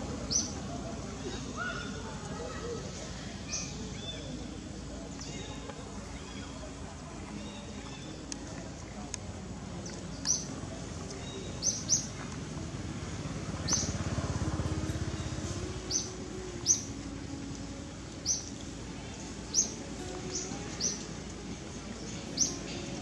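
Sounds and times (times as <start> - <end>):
outdoor background noise: 0.0 - 23.0
bird chirping: 9.8 - 12.2, 13.5 - 14.1, 14.7 - 17.1, 18.2 - 21.1, 22.0 - 23.0.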